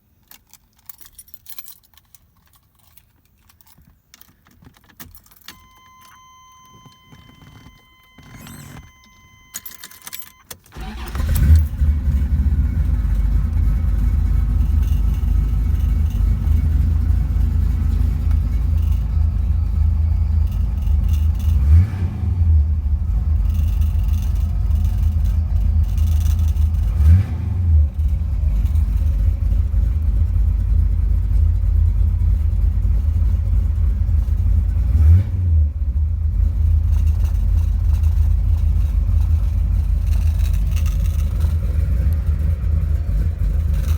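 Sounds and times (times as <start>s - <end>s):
engine cranking: 0.3s - 43.9s
engine throttle blips: 5.4s - 43.9s
engine idling: 10.7s - 43.9s.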